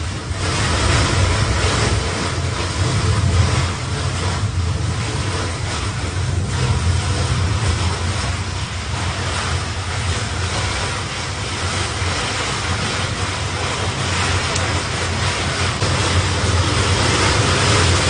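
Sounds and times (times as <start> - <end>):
heavy wind-driven rain: 0.0 - 18.0
wind buffeting microphone: 0.0 - 18.0.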